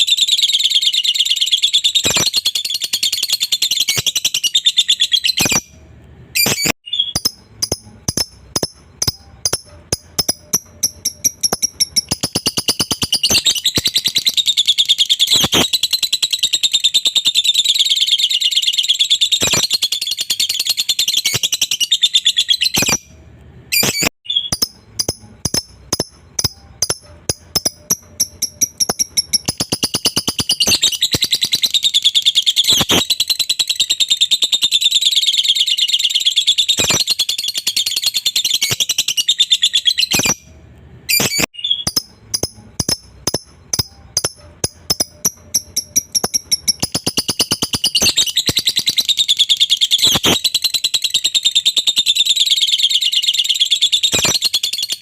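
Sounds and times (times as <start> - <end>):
lovebird chattering trill: 6.4 - 23.0, 23.7 - 40.4, 41.1 - 55.0.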